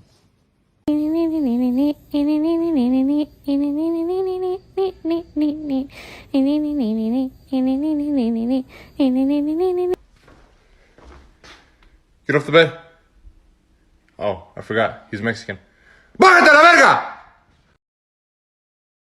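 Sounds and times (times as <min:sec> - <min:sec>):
person singing a lullaby melody: 0:00.9 - 0:10.0.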